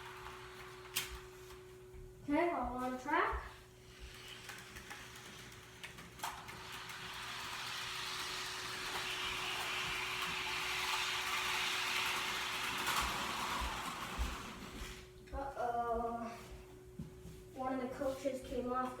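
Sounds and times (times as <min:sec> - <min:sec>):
model train motor whirring: 0:00.0 - 0:01.3, 0:03.8 - 0:15.0.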